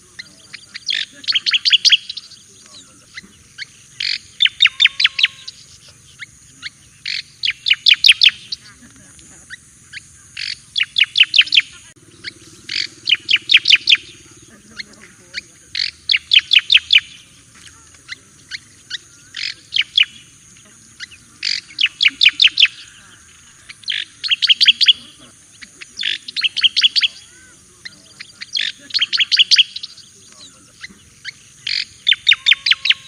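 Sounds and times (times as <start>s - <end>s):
bird singing sharp high notes: 0.2s - 8.7s, 21.0s - 33.0s.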